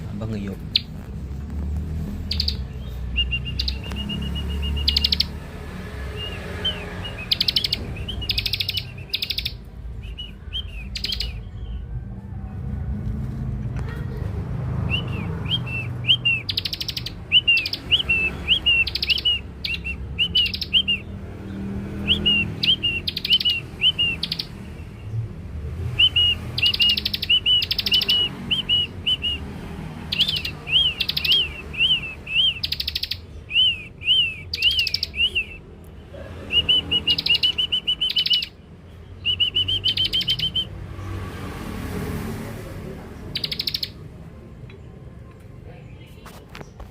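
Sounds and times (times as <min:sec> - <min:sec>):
bird chirping and rasping: 0:00.0 - 0:12.0, 0:12.6 - 0:44.9.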